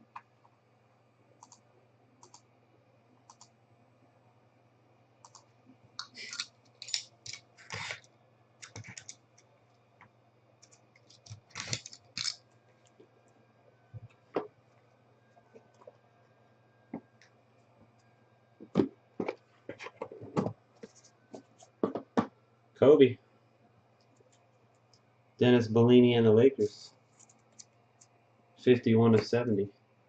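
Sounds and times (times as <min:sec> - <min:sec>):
cards scraping and clicking: 0:08.6 - 0:09.2, 0:10.6 - 0:12.4.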